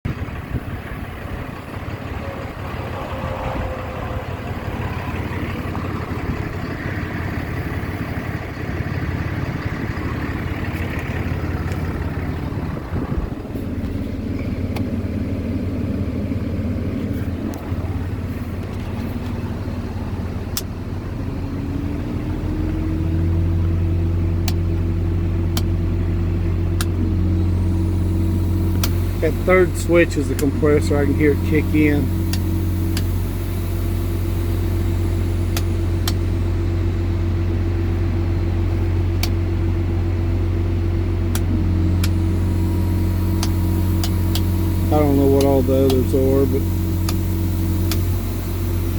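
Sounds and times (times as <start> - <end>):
diesel truck engine idling: 0.0 - 48.9
air compressor tone: 24.2 - 48.9.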